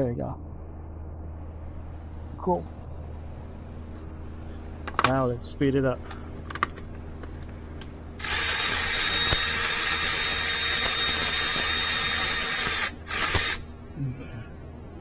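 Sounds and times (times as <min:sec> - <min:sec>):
power tool spinning: 0:08.2 - 0:13.6.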